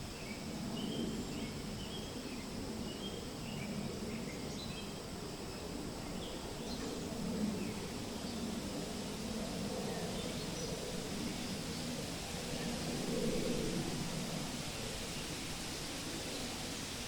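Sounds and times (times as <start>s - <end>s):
high insect-like whine: 0.0s - 17.0s
wind through trees: 0.0s - 17.0s.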